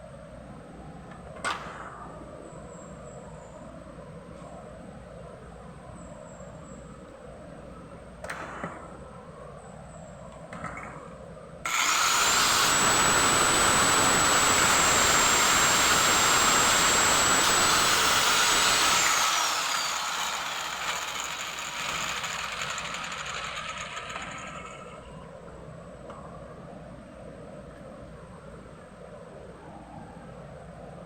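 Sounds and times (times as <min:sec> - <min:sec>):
power tool motor whining: 0:11.7 - 0:25.1.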